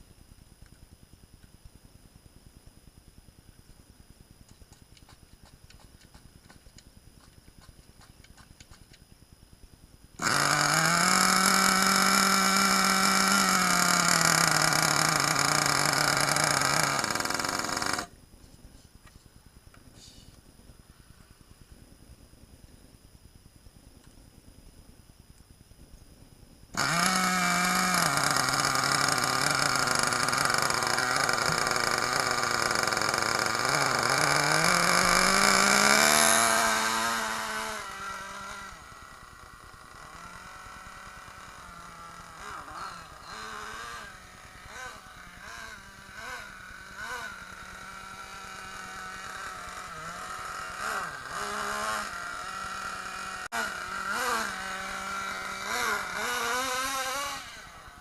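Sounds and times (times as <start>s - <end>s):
small nitro engine revving: 10.2s - 18.2s, 26.7s - 58.0s.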